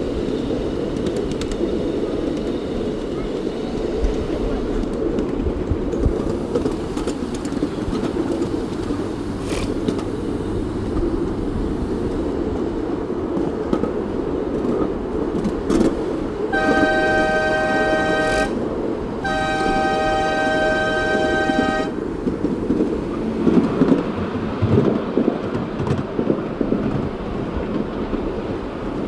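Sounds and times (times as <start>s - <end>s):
steam train rumbling: 0.0s - 29.0s
two-note train whistle: 16.5s - 22.0s.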